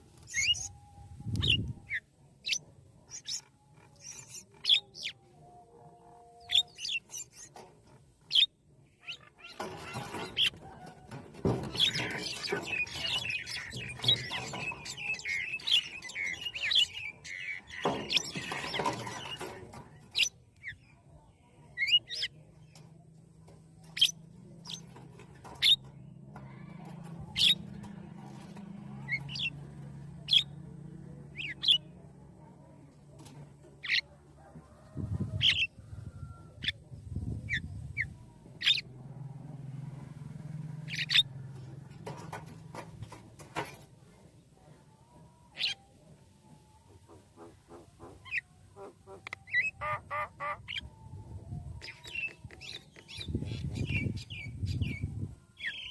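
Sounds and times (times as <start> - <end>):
birds chirping: 0.0 - 38.9, 40.2 - 43.2, 46.7 - 55.9.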